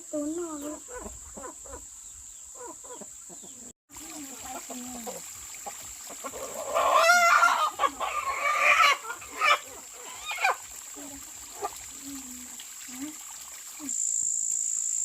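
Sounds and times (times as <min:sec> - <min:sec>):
chickens clucking: 0:00.2 - 0:10.6
chicken loud wavering call: 0:06.2 - 0:10.6.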